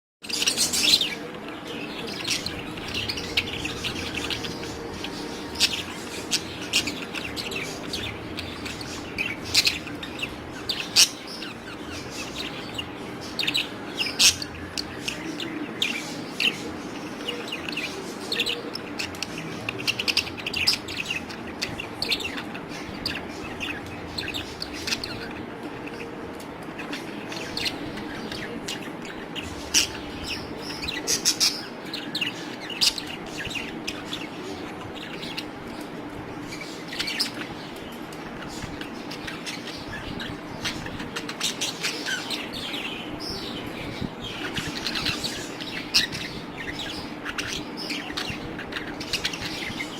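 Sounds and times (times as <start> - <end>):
budgerigars chirping and chattering: 0.2 - 49.9
steady low hum: 0.3 - 49.9.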